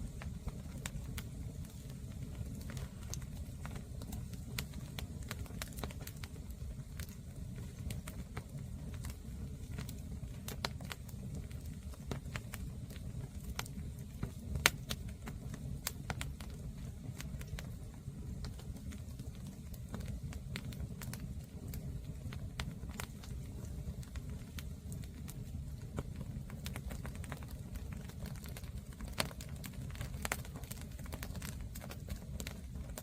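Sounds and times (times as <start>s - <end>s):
campfire flames rushing: 0.0s - 33.0s
fire crackles and pops: 0.0s - 33.0s.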